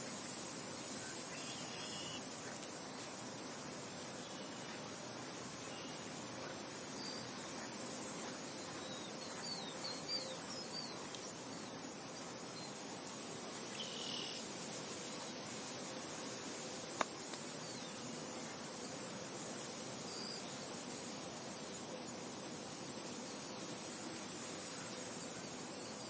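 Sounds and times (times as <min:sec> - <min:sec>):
faint bird chirps: 0:00.9 - 0:03.0, 0:06.9 - 0:11.9, 0:13.7 - 0:14.4.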